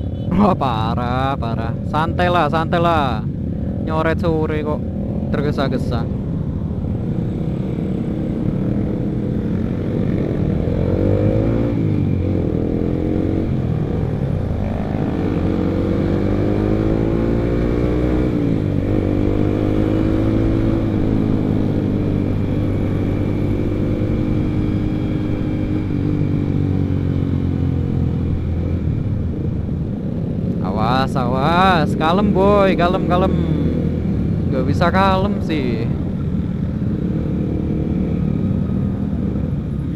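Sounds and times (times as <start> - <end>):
motorcycle engine accelerating: 7.6 - 30.0.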